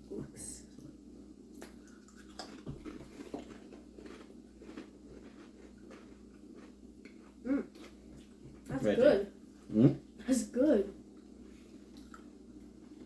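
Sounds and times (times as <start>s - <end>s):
chewing potato chips: 1.5s - 8.4s.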